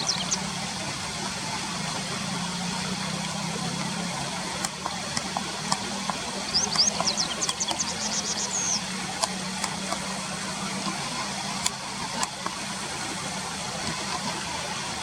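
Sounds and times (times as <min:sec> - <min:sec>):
bird chirping: 0:00.0 - 0:00.4, 0:06.5 - 0:08.9
low engine-like hum: 0:00.0 - 0:15.0.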